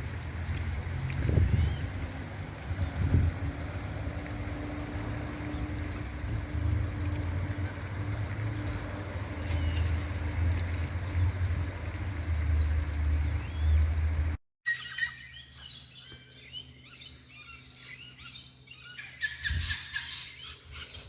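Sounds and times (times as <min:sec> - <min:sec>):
wind rumble on microphone: 0:00.0 - 0:14.4, 0:19.3 - 0:20.0.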